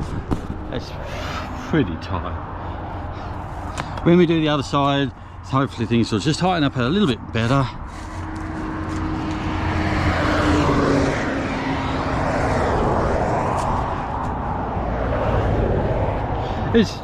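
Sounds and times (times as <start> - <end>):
engine noise: 0.0 - 17.0.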